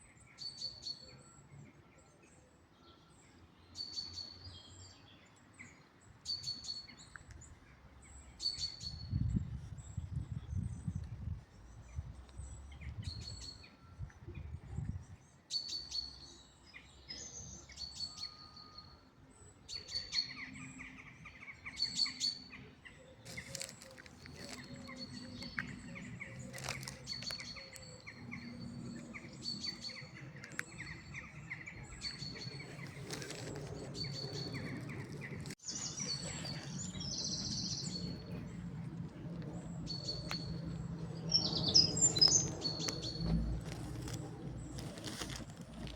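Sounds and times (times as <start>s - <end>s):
birds chirping: 19.8s - 45.9s.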